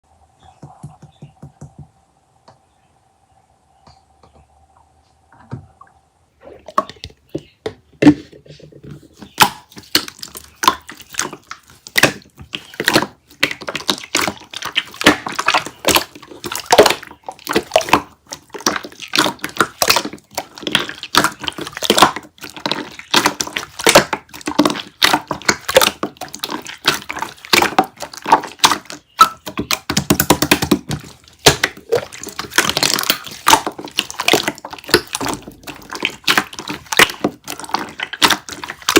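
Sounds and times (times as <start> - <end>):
hands squelching wet slime: 9.0 - 38.9.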